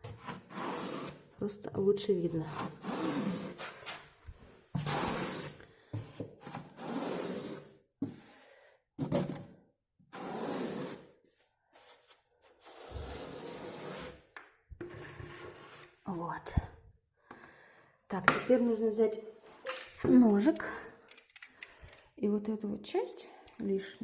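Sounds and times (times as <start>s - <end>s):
spatula scraping wall canvas: 0.0s - 1.3s, 2.4s - 8.4s, 10.1s - 16.2s.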